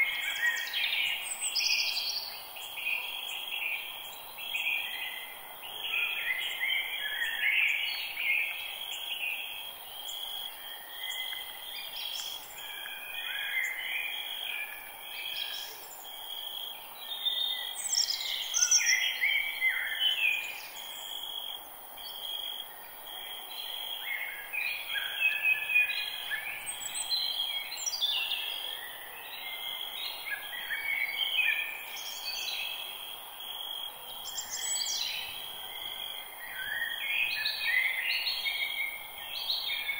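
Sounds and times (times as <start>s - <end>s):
birds singing and chirping: 0.0s - 14.5s, 17.0s - 21.2s, 23.2s - 32.9s, 34.2s - 39.9s
high insect drone: 0.2s - 25.1s.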